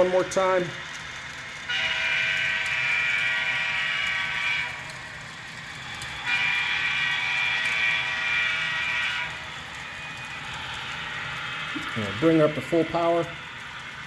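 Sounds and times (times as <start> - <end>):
model train air horn blasts: 1.6 - 5.0, 6.1 - 10.3.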